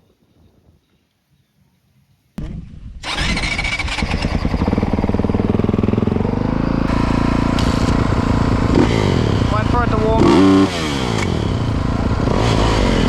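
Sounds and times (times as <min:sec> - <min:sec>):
motocross bike engine: 0:02.4 - 0:13.0
engine cranking: 0:03.0 - 0:06.2.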